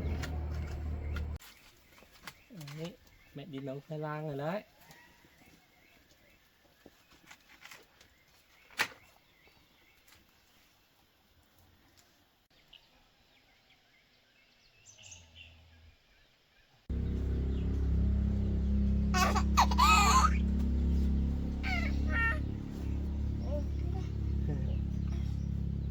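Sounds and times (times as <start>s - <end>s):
faint bird calls: 19.1s - 25.8s.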